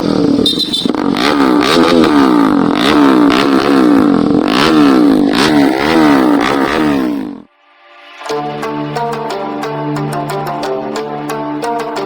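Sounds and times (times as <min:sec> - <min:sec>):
exhaust cracks: 0:00.0 - 0:07.5
motorcycle engine revving: 0:00.0 - 0:07.5.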